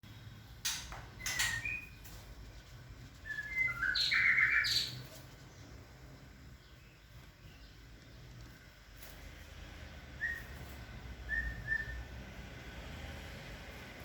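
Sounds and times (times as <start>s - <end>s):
bird chirps and whistled notes: 1.2s - 2.0s, 3.2s - 5.2s, 10.2s - 12.1s.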